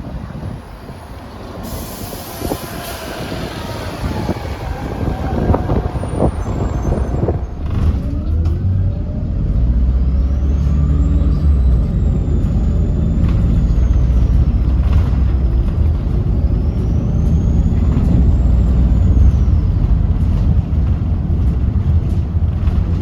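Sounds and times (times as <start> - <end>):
bus engine pulling under load: 0.0 - 23.0
air hissing: 1.6 - 4.5
turbocharger whine: 1.9 - 19.8
knocks and rattles: 19.8 - 23.0.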